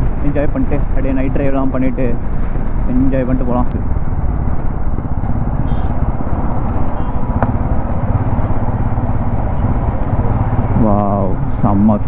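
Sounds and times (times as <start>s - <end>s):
motorcycle engine droning: 3.4s - 12.0s.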